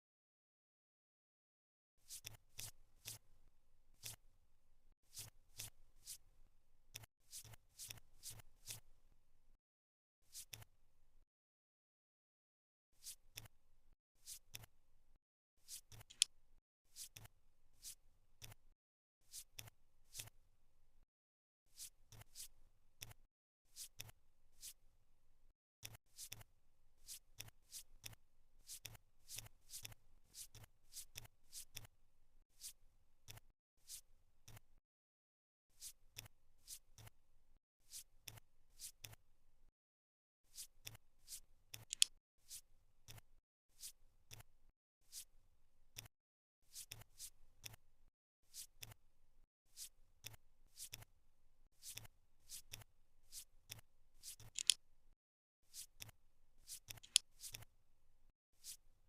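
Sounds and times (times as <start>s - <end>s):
puzzle piece swish: 5.1s - 6.2s, 15.6s - 16.3s, 40.5s - 42.7s, 54.2s - 54.8s, 56.6s - 57.7s
puzzle piece clicking into place: 16.0s - 16.3s, 41.8s - 42.1s, 54.4s - 54.8s, 56.9s - 57.2s
jigsaw pieces clicking: 54.4s - 54.8s, 57.0s - 57.2s.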